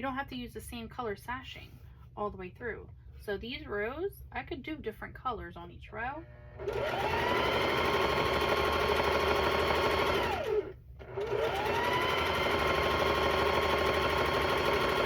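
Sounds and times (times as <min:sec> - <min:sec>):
sewing machine motor whine: 0:06.3 - 0:15.0.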